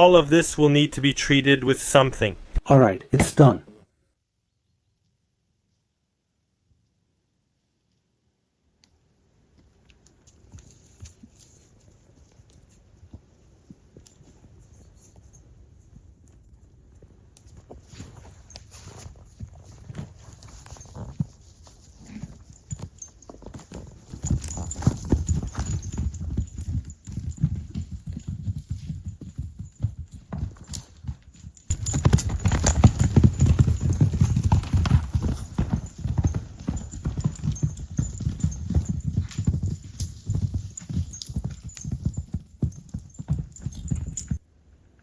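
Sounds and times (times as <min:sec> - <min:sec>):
horse hooves clip-clopping: 0:08.8 - 0:44.4.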